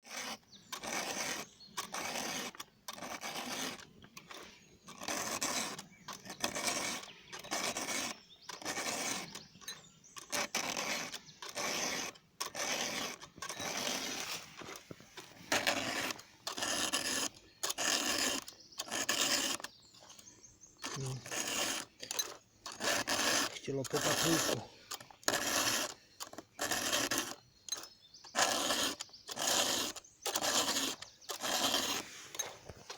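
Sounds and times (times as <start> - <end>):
hand file scraping chainsaw chain: 0.0 - 32.9.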